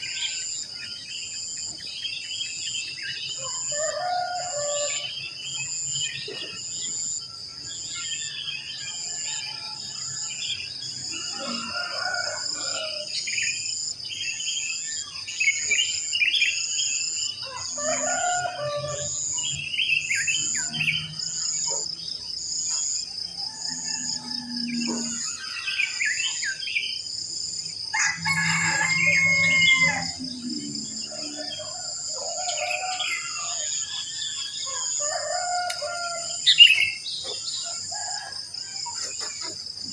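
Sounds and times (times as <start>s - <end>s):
songbirds chirping and trilling: 0.0s - 39.9s
rooster crowing: 3.4s - 5.1s, 8.4s - 13.2s, 17.4s - 19.6s, 23.2s - 26.1s, 27.8s - 39.2s.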